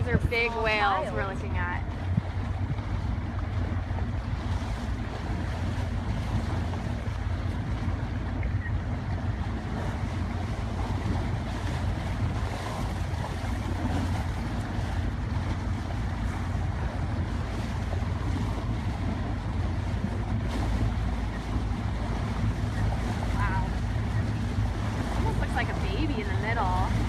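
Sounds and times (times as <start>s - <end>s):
steady low rumble: 0.0s - 27.0s
water noise: 0.0s - 27.0s
wind buffeting microphone: 0.0s - 27.0s.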